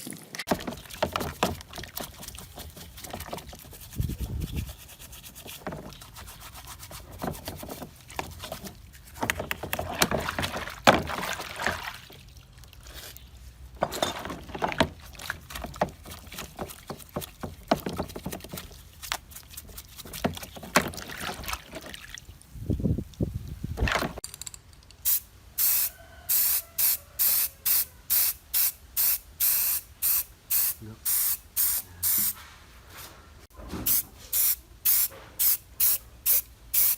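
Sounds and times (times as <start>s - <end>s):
metal parts clicking and scraping: 23.9s - 25.2s
short bursts of spraying hiss: 25.0s - 32.4s, 33.9s - 36.9s.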